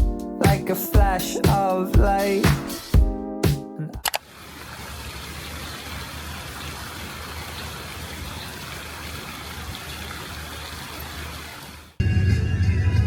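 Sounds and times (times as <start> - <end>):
rushing water: 4.2 - 12.0.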